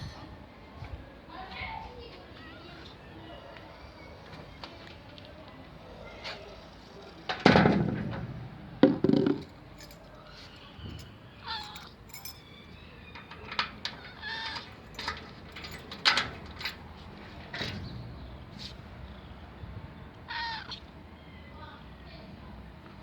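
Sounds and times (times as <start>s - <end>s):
sharp knocks and clicks: 7.3s - 9.5s
loud knock: 7.5s - 9.5s
cat meowing: 20.3s - 20.8s.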